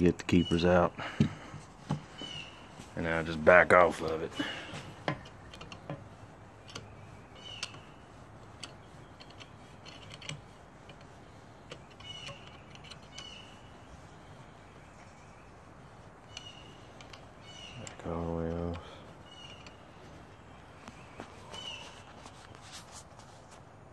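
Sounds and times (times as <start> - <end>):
faint metallic clicks and taps: 3.9 - 13.4, 16.2 - 21.4.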